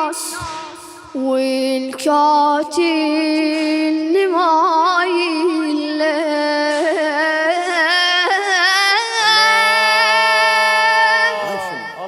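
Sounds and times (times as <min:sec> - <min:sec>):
boy singing elegy: 0:00.0 - 0:12.0
lower voice singing: 0:04.3 - 0:12.0.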